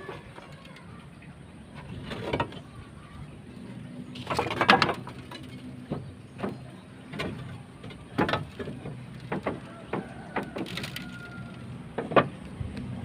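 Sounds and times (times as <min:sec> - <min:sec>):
knocks and clattering on roof: 0:04.3 - 0:11.0.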